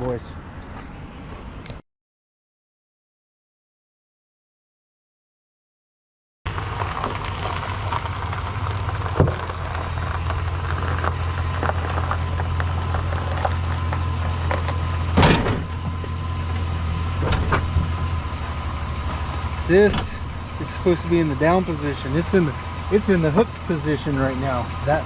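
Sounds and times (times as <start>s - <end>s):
truck engine idling: 6.5s - 25.0s
clunk: 14.5s - 18.0s, 19.0s - 20.5s.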